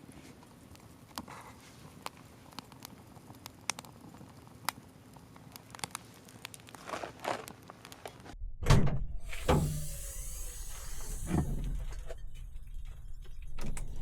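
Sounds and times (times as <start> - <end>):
brief hiss: 9.2 - 12.3.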